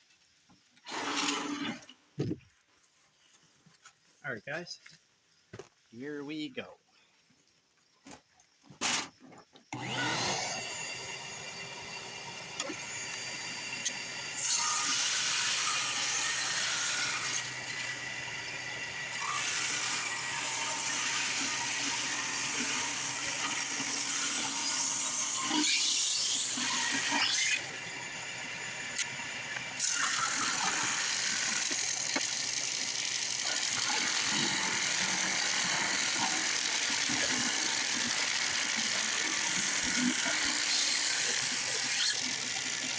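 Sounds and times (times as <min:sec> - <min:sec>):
drum sander running: 0:09.8 - 0:14.4.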